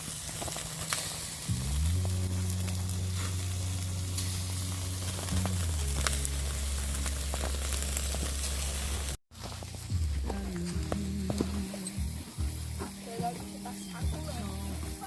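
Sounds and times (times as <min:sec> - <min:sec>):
meat sizzling on grill: 0:00.0 - 0:15.0
background music: 0:01.5 - 0:07.8, 0:09.8 - 0:15.0.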